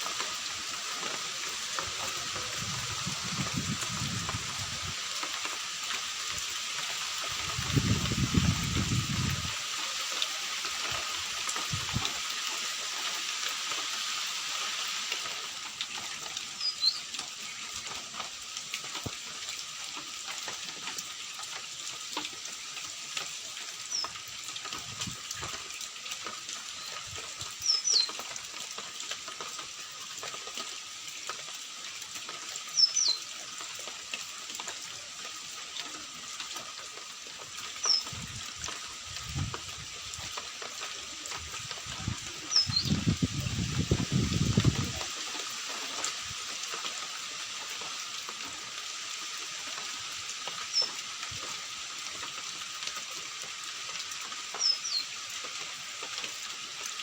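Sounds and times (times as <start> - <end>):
rain hiss: 0.0 - 57.0
bird chirping: 42.5 - 43.0.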